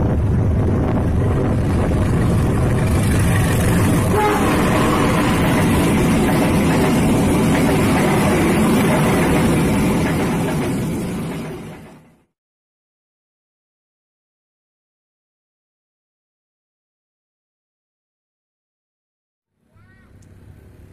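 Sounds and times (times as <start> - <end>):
train rumbling on rails: 0.0 - 12.3.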